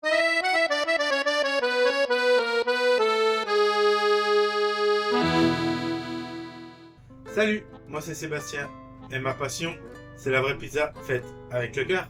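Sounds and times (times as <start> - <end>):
accordion music: 0.0 - 9.8.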